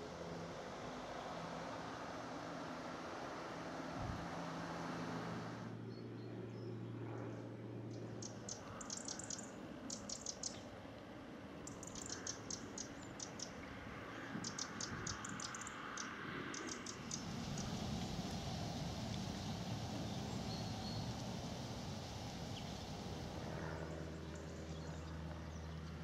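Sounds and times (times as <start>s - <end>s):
faint outdoor background hiss: 0.0s - 26.0s
bird ticking calls: 8.2s - 10.6s, 11.6s - 13.6s, 14.4s - 17.7s.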